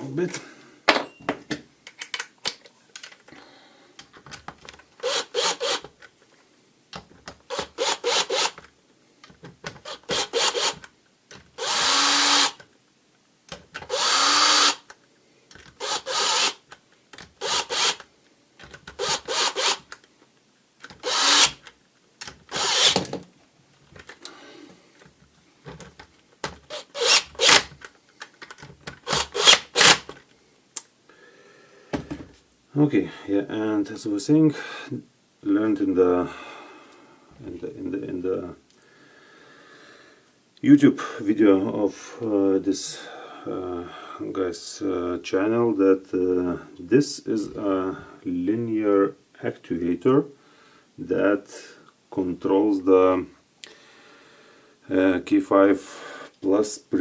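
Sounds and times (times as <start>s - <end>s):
cordless drill driving screws: 5.0s - 5.9s, 7.5s - 8.6s, 9.8s - 10.9s, 11.6s - 12.6s, 13.8s - 14.9s, 15.7s - 16.6s, 17.4s - 18.0s, 18.9s - 19.9s, 20.9s - 21.6s, 22.5s - 23.1s, 26.7s - 27.7s, 29.0s - 30.1s.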